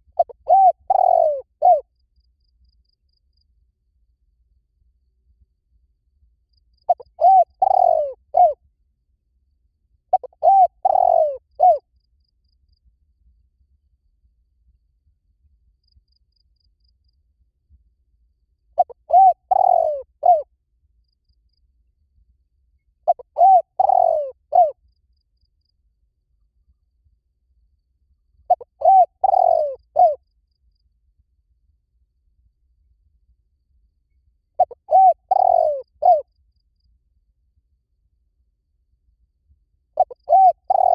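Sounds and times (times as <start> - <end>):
dove cooing: 0.1 - 1.9, 6.9 - 8.6, 10.1 - 11.8, 18.8 - 20.5, 23.1 - 24.8, 28.5 - 30.2, 34.6 - 36.2, 40.0 - 40.9.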